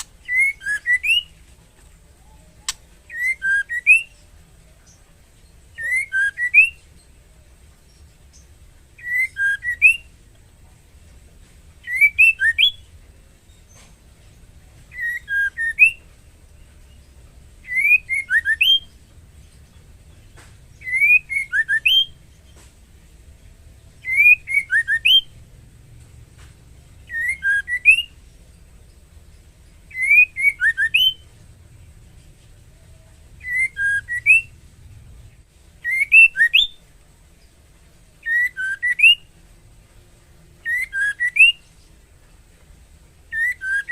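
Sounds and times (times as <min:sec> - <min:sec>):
bird whistling rising notes: 0:00.2 - 0:01.4, 0:02.2 - 0:04.2, 0:05.8 - 0:06.8, 0:09.0 - 0:10.1, 0:11.8 - 0:12.9, 0:14.9 - 0:16.0, 0:17.6 - 0:19.0, 0:20.8 - 0:22.2, 0:24.0 - 0:25.3, 0:27.0 - 0:28.2, 0:29.9 - 0:31.3, 0:33.4 - 0:34.6, 0:35.8 - 0:36.8, 0:38.2 - 0:39.3, 0:40.6 - 0:41.6, 0:43.3 - 0:43.9.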